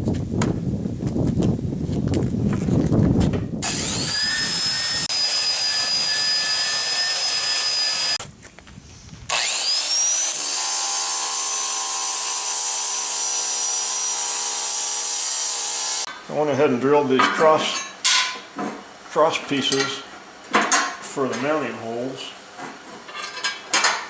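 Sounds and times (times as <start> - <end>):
motor whine: 3.6 - 8.2.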